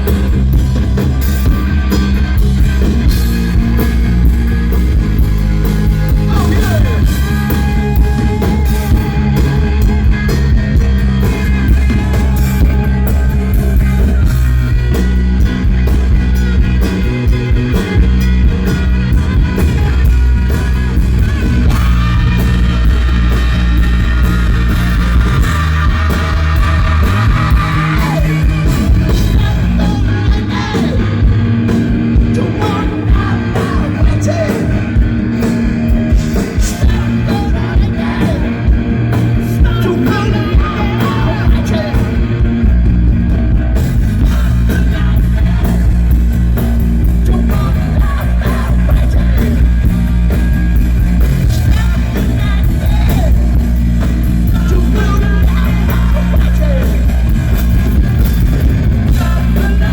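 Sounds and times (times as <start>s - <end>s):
bass guitar: 0.0s - 59.9s
drum kit: 0.0s - 59.9s
electric guitars: 0.0s - 59.9s
person singing: 6.0s - 14.5s, 21.2s - 35.4s, 36.1s - 42.5s, 44.2s - 50.4s, 51.4s - 57.5s, 58.8s - 59.9s.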